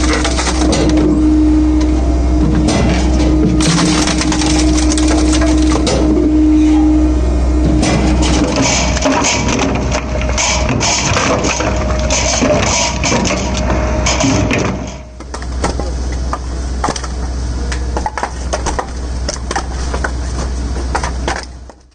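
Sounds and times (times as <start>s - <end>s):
wood crunching and cracking: 0.0s - 0.9s, 3.6s - 5.9s, 15.2s - 21.9s
log splitter motor hum: 0.0s - 6.5s, 7.6s - 21.9s.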